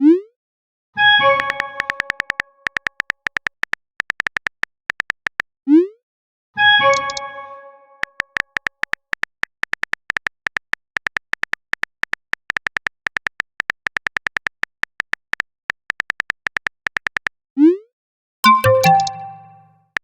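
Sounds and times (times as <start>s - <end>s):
phone keyboard typing clicks: 1.3s - 5.5s, 6.9s - 7.2s, 8.0s - 17.4s, 18.5s - 20.0s
chime: 18.5s - 19.7s.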